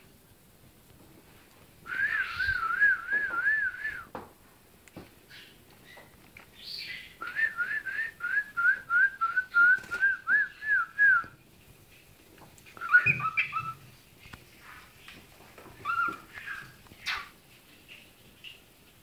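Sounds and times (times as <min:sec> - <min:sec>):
cockatiel whistling: 0:01.9 - 0:04.0, 0:12.8 - 0:13.8.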